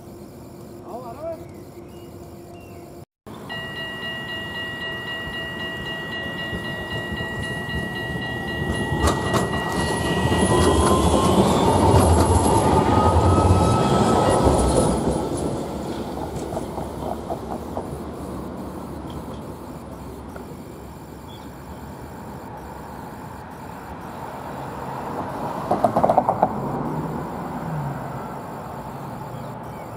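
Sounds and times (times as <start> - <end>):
steady two-note tone: 3.3 - 11.0
train rumbling past: 3.4 - 19.8.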